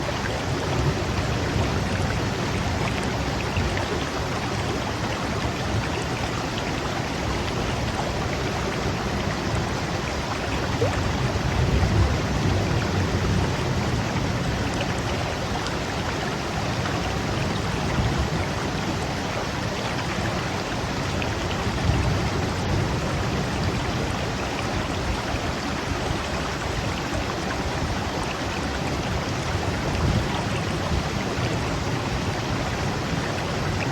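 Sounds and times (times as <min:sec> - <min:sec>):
flowing water rushing: 0:00.0 - 0:33.9.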